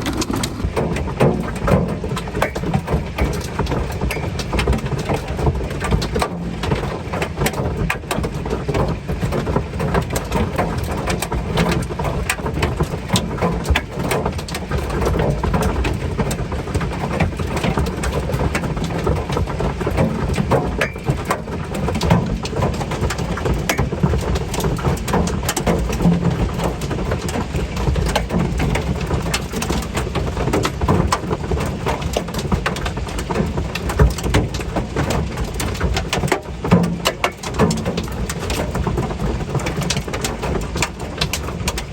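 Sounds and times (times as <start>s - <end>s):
low drumming: 0.0s - 2.2s
hail on a metal roof: 0.0s - 41.9s.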